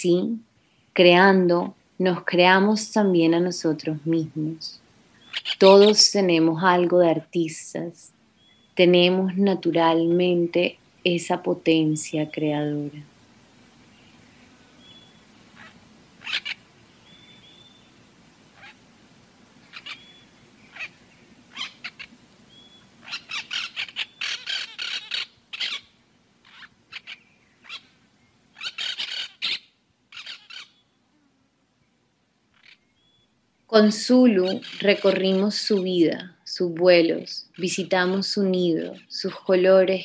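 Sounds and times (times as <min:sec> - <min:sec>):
birds chirping and calling: 0:05.2 - 0:06.2, 0:13.8 - 0:17.9, 0:19.6 - 0:30.9, 0:32.6 - 0:33.2, 0:33.8 - 0:36.2, 0:37.0 - 0:40.0
faint low hum: 0:30.8 - 0:38.8.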